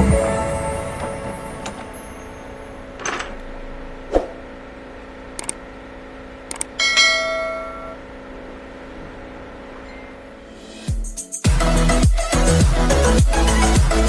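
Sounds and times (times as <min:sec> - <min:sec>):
metal piece ringing bell-like: 0:06.8 - 0:08.1.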